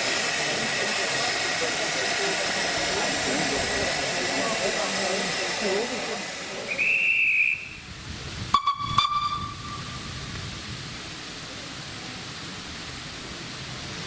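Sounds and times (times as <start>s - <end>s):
steam hissing: 0.0s - 14.0s
short high whistle: 6.7s - 7.8s, 8.6s - 10.0s.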